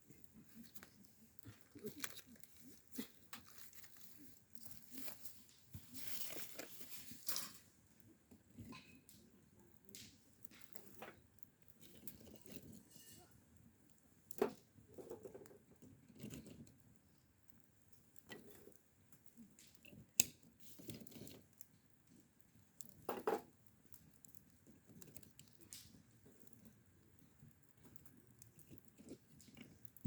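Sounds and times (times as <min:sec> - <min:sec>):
small objects knocking and clicking: 0:14.3 - 0:16.5, 0:22.9 - 0:26.5.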